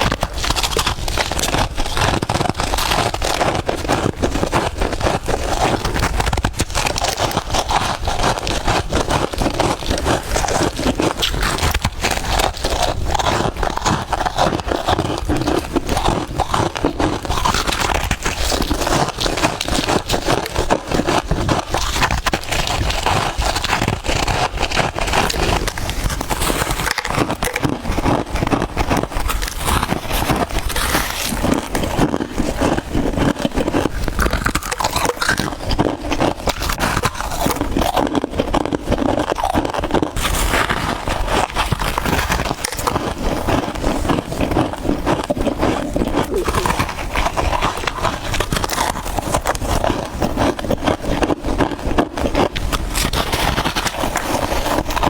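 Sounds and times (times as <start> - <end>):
chewing crunchy frost: 0.0 - 55.0.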